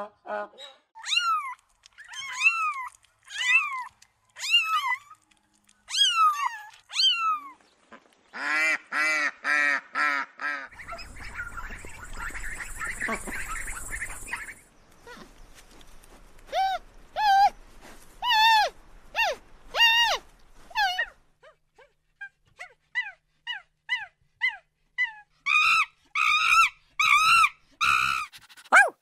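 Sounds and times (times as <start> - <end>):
water: 1.1 - 8.4
ducks quacking: 8.4 - 14.6.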